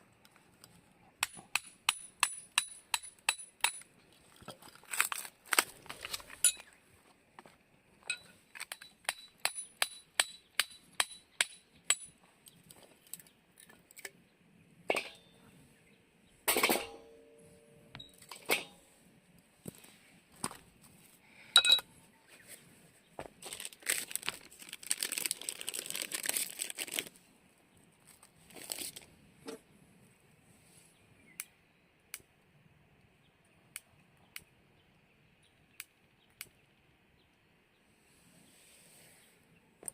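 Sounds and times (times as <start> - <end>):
camp gear rustling and crinkling: 4.1 - 7.2, 22.3 - 27.2, 28.0 - 29.6
ringing metal clink: 21.6 - 21.9.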